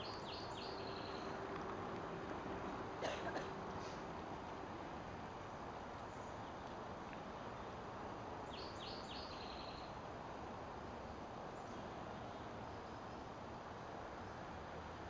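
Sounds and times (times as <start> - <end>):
bird song with buzzy trill: 0.0 - 1.3, 8.5 - 9.9
background noise: 0.0 - 15.0.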